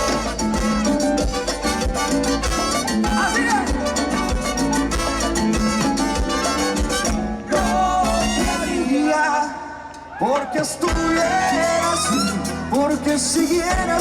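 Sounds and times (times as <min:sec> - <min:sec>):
steady drum beat: 0:00.0 - 0:08.8
latin dance band playing: 0:00.0 - 0:09.8, 0:10.5 - 0:14.0.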